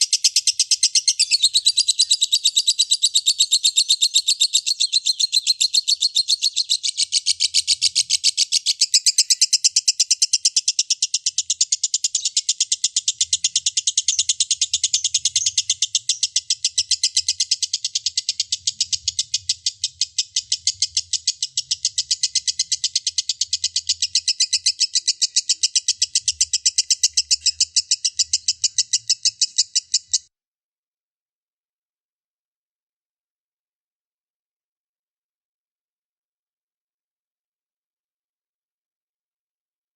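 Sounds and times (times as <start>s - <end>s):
bird shrill rapid chattering: 0.0s - 30.2s.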